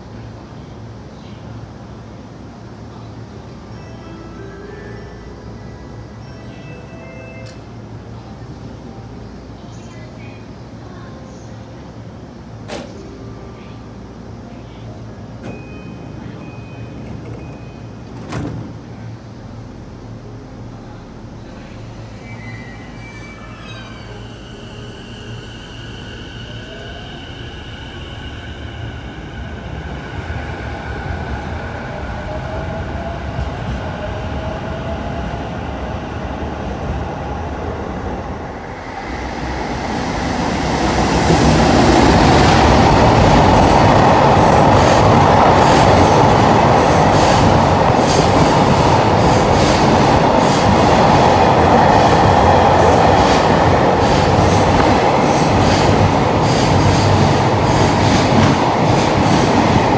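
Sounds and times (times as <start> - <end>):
freight train wheels rumbling: 20.7 - 59.9.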